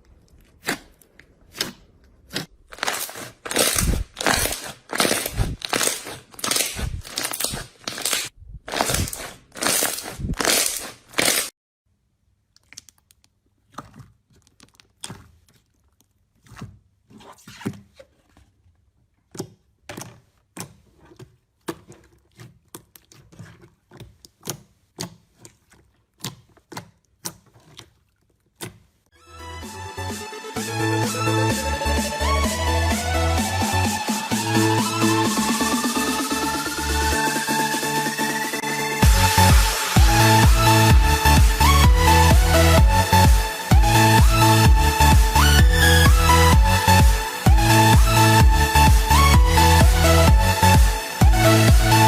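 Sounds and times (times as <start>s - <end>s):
slime crackling when squeezed: 0.3s - 11.5s.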